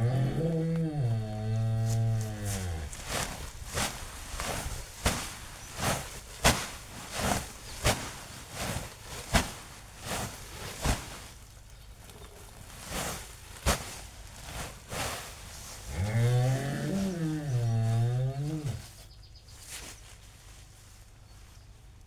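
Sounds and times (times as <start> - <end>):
cow mooing: 0.0 - 3.0, 15.9 - 18.8.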